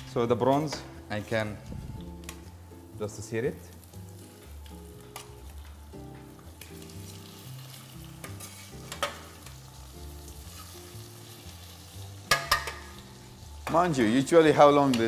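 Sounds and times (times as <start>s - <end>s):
prawns sizzling in a pan: 2.2s - 15.0s
metal utensil clicking on pan: 8.2s - 9.6s, 12.3s - 13.0s.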